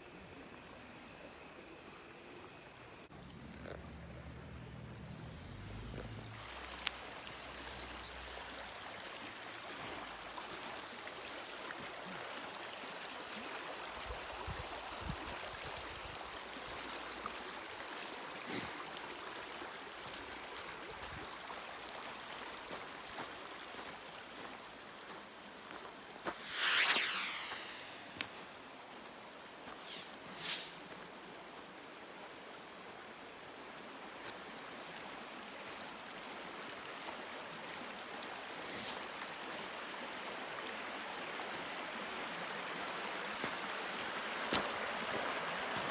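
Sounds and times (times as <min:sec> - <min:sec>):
stream rushing: 0:05.4 - 0:13.9, 0:34.2 - 0:45.9
whoosh: 0:26.3 - 0:28.6, 0:29.8 - 0:31.0.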